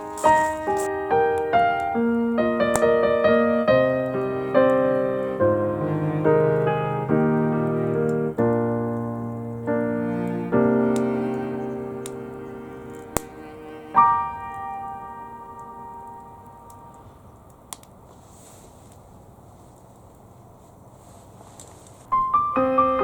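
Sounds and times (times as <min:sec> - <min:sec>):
slow piano melody: 0:00.0 - 0:17.4, 0:22.1 - 0:23.0.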